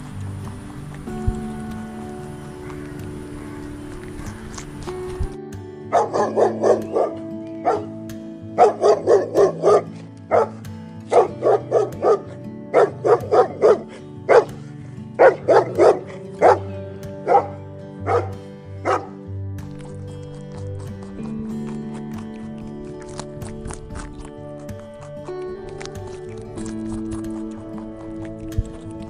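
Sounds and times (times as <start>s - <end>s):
background music: 0.0s - 29.0s
dog barking: 5.9s - 7.9s, 8.6s - 19.2s.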